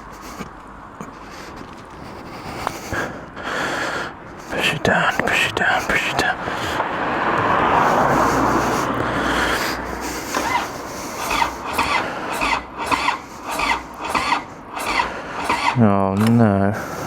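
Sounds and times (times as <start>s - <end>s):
motorcycle starter cranking: 9.5s - 17.0s
squeal while cranking: 10.2s - 15.8s.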